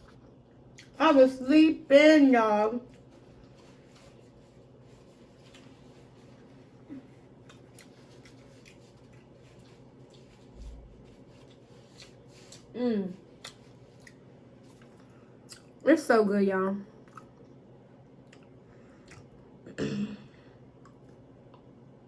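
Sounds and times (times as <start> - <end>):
person chewing: 0.0 - 1.0, 5.0 - 15.8, 17.1 - 17.5, 18.2 - 19.4
person humming: 12.8 - 13.2.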